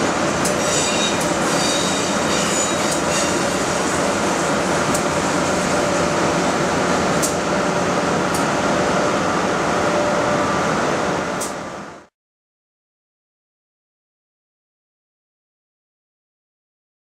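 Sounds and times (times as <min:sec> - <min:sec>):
train running rumble: 0:00.0 - 0:12.1.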